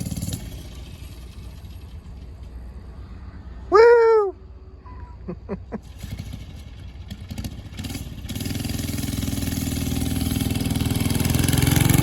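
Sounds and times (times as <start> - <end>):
small engine sputtering: 0.0 - 3.2, 5.8 - 12.0.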